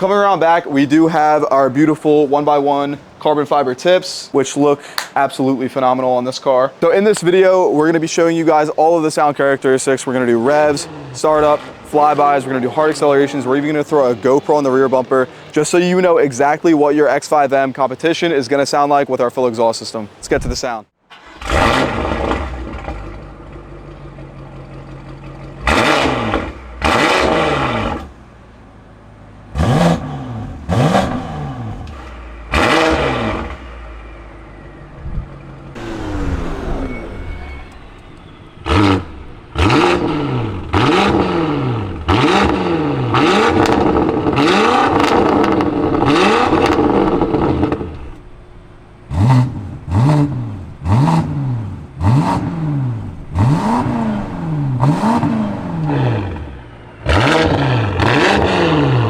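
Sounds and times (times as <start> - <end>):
car engine idling and revving: 7.8 - 15.6, 21.2 - 59.0.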